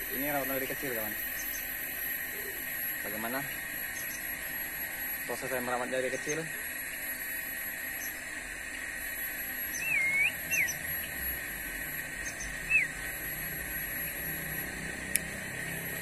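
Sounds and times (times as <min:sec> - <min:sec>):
steady high drone: 0:00.0 - 0:16.0
short bird chirps: 0:09.7 - 0:11.1, 0:12.2 - 0:13.0.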